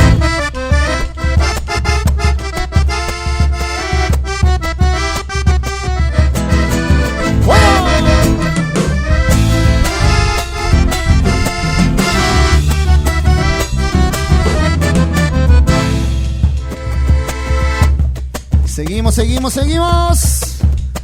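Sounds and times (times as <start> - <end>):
folk band playing: 0.0 - 20.1
accordion: 0.0 - 20.2
steady drum beat: 0.0 - 21.0
person shouting: 7.4 - 8.6.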